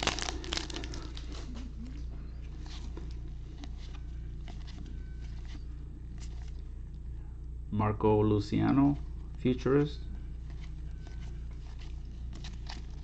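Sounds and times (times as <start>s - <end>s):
low electrical hum: 0.0s - 13.0s
trading cards flipped through: 10.5s - 13.0s.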